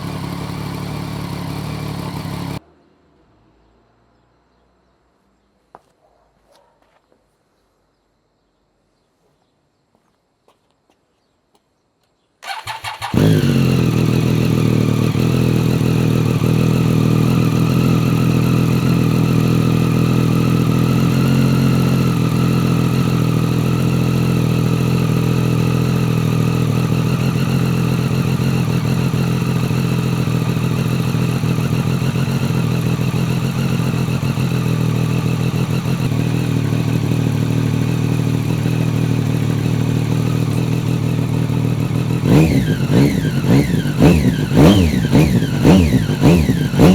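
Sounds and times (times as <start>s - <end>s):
motorcycle engine idling: 0.0s - 2.6s, 12.4s - 46.9s.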